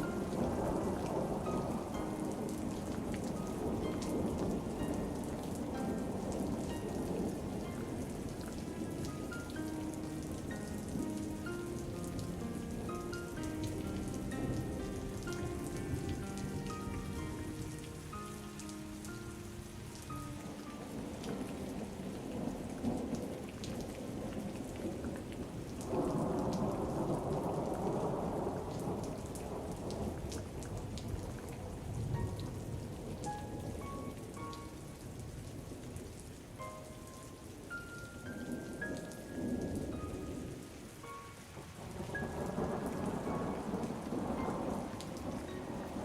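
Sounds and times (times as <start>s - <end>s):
thunder rumbling: 0.0s - 19.2s, 20.0s - 33.6s, 41.6s - 46.0s
soft single-note melody: 0.0s - 23.2s, 32.1s - 36.0s, 36.6s - 46.0s
heavy rain pattering: 0.0s - 46.0s.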